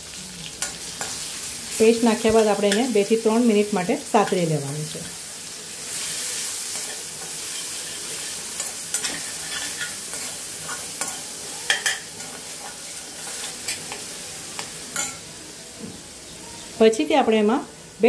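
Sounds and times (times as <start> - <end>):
paste sizzling in hot oil: 0.0 - 15.5
metal spoon scraping pan: 6.7 - 15.2.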